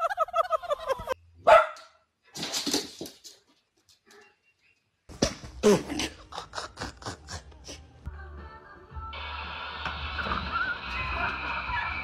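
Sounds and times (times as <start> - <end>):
dog barking: 1.4 - 2.0.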